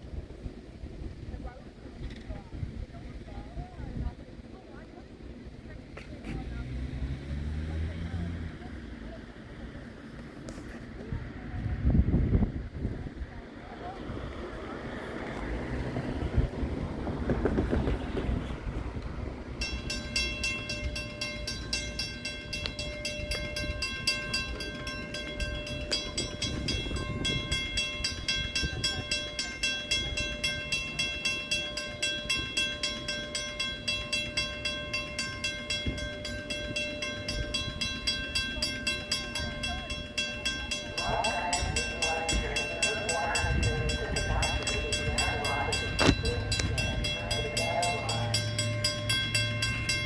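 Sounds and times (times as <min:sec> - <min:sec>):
railroad crossing bell ringing: 0:15.9 - 0:50.0.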